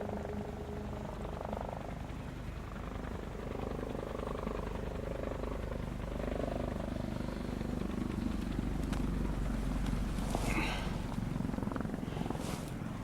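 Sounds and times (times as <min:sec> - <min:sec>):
helicopter rotor beat: 0:00.0 - 0:13.0
low engine hum: 0:00.0 - 0:13.0.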